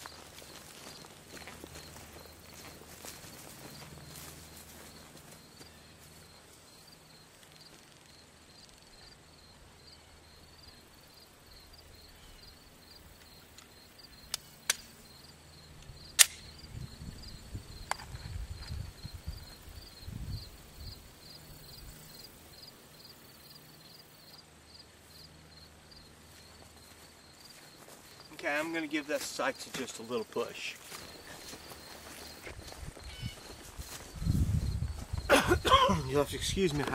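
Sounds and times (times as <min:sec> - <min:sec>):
sharp clicks: 0:13.2 - 0:14.9, 0:15.8 - 0:16.5.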